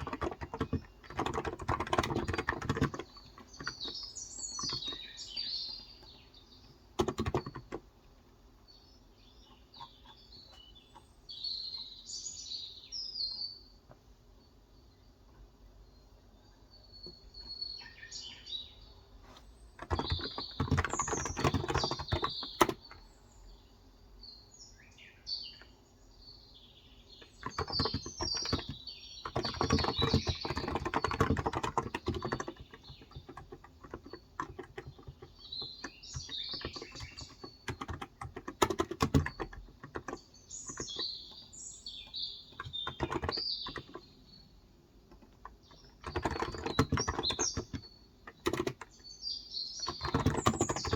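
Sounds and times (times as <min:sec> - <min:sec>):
typing on a keyboard: 0:00.0 - 0:05.4, 0:07.0 - 0:07.9, 0:19.8 - 0:23.0, 0:27.2 - 0:44.1, 0:45.1 - 0:49.0, 0:49.8 - 0:50.9
birds chirping: 0:00.0 - 0:50.9.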